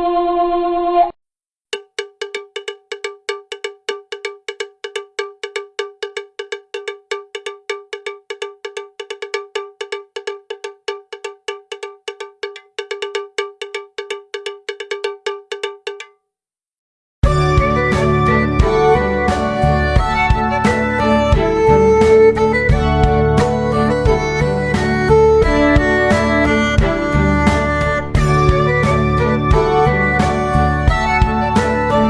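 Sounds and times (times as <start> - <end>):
bell-like metallic strikes: 27.0 - 30.3.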